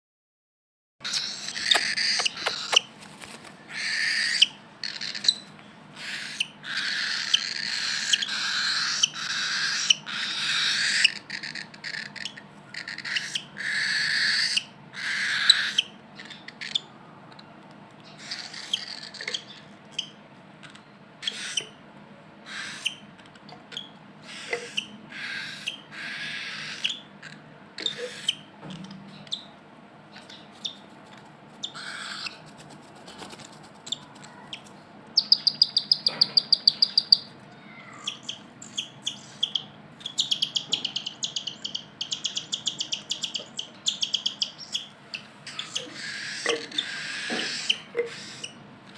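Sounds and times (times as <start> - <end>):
cockatiels making hissy calls: 31.6 - 32.4.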